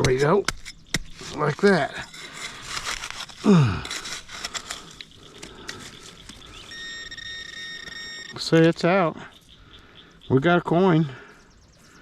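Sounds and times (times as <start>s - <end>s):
digging in gravelly sand: 0.0s - 6.8s
person grunting: 3.4s - 3.9s
metal detector steady tone: 5.8s - 9.0s.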